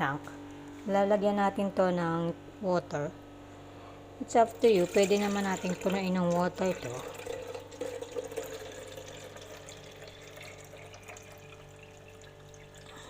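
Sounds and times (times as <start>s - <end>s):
water splashing into plastic tank: 4.6s - 13.0s.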